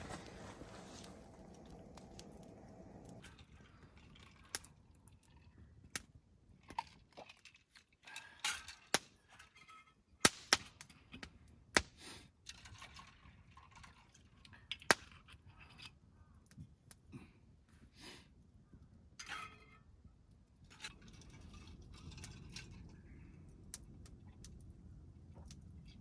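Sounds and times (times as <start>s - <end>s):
rustling: 0.0s - 3.8s.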